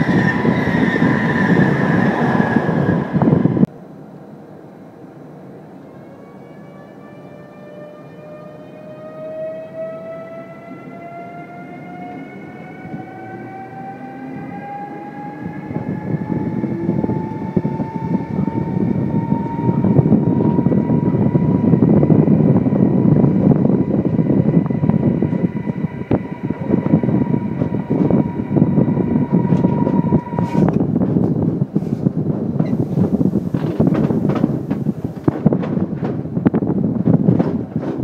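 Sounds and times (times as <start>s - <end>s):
wheels rumbling on rails: 0.0s - 3.7s, 5.6s - 38.0s
traction motor whine: 11.7s - 30.8s
wheels clacking over rail joints: 32.6s - 36.3s.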